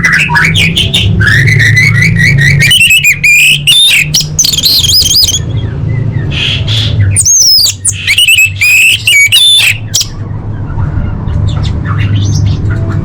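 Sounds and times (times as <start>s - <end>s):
thrush singing whistled phrases: 0.0s - 10.1s.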